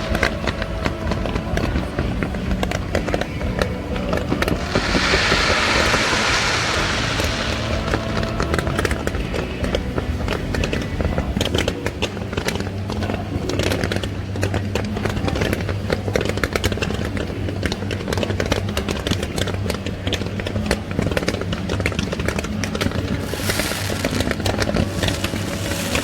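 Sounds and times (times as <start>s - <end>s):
music playing: 0.0s - 11.4s, 22.7s - 26.0s
fireworks exploding: 4.4s - 9.7s, 22.8s - 26.0s.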